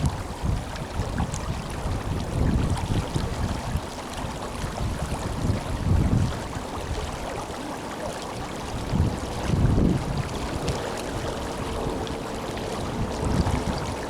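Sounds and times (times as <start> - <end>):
river water rushing: 3.0 - 14.0
low rumbling swells: 8.4 - 14.0.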